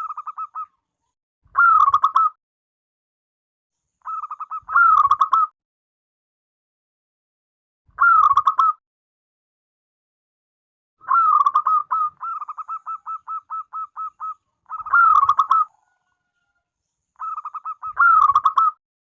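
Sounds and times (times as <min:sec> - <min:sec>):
dove cooing: 0:11.0 - 0:16.3, 0:17.2 - 0:18.8.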